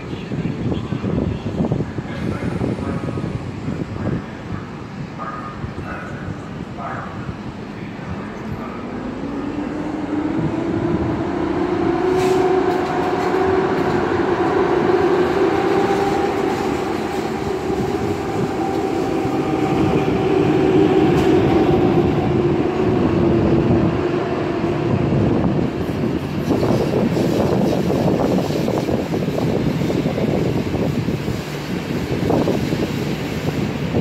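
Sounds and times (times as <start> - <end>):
electric train whine: 1.0 - 34.0.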